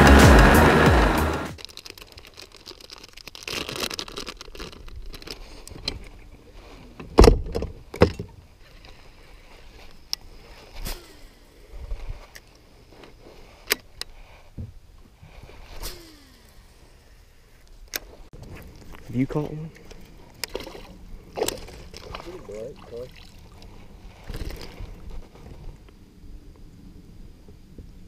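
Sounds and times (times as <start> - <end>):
loud thumps: 0.0 - 1.6.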